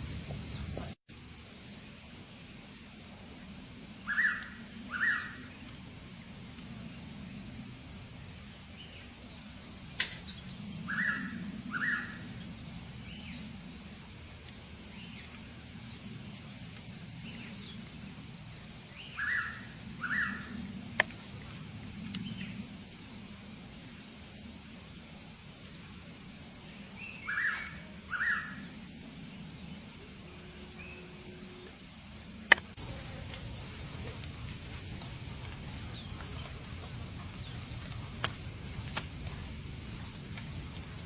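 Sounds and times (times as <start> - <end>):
insect-like whine: 0.0 - 41.0
sharp clicks: 32.5 - 32.8.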